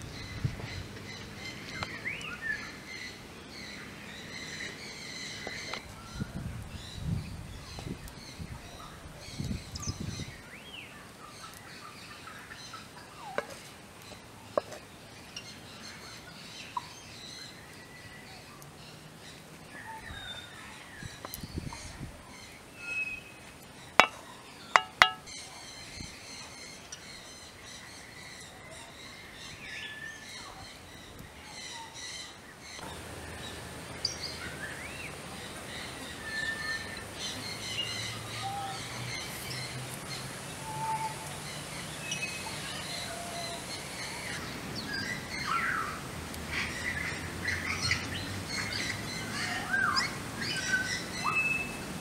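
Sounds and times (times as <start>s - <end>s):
wild birds chirping and calling: 0.0s - 6.3s, 7.0s - 51.8s
sharp knocks: 24.8s - 25.3s.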